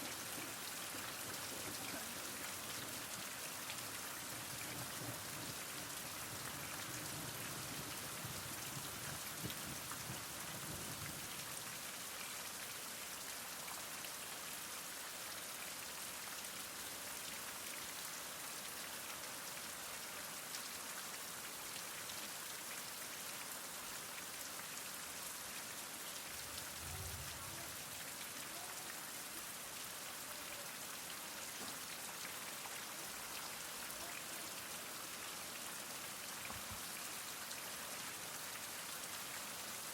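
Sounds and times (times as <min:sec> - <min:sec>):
heavy rain falling: 0:00.0 - 0:12.2, 0:24.5 - 0:39.9
faint low rumble: 0:26.4 - 0:27.7.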